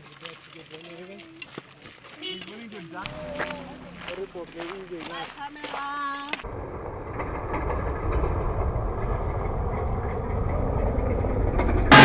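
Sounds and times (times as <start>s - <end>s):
vehicle engine rumbling: 2.2s - 12.0s.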